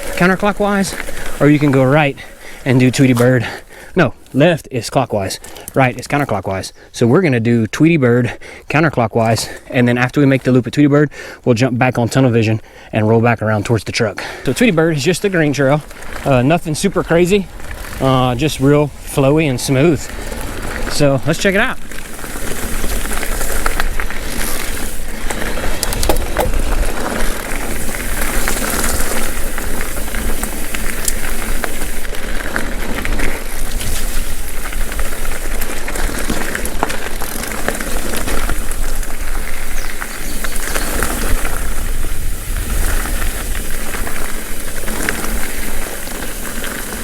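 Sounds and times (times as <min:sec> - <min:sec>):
small stones: 0:00.0 - 0:04.0, 0:14.4 - 0:47.0
bike rattling and clicking: 0:00.0 - 0:06.3, 0:14.2 - 0:47.0
bike tyres rolling on dirt: 0:00.0 - 0:47.0
wind rumbling on microphone: 0:15.4 - 0:47.0.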